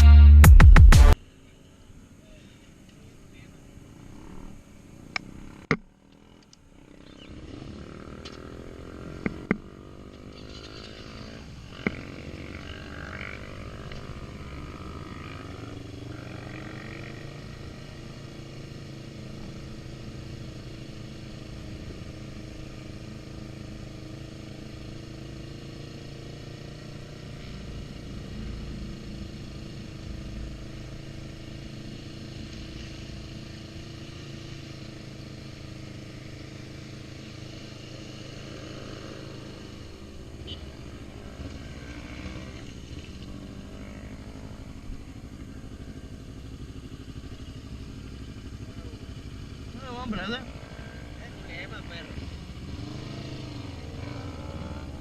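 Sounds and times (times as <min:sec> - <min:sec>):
motorcycle engine running: 0:03.0 - 0:55.0.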